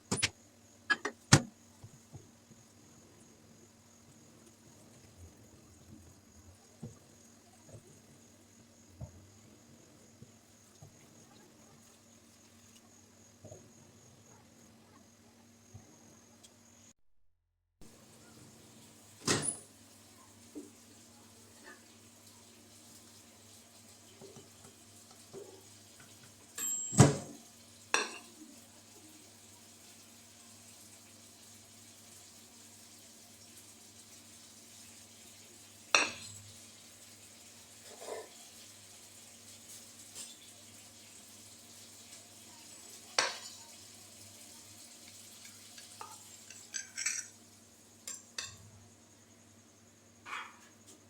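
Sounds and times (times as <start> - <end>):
kitchenware clacking: 0.0 - 0.3, 0.9 - 1.5, 28.0 - 28.3, 36.0 - 36.4, 43.2 - 43.6, 46.0 - 47.4
dishes ringing clatter: 0.9 - 1.2, 26.6 - 27.4, 28.0 - 28.3, 36.0 - 36.4, 46.0 - 47.4
dishes knocking: 0.9 - 1.5
dish clinking: 26.6 - 27.4, 28.0 - 28.3, 46.0 - 47.3.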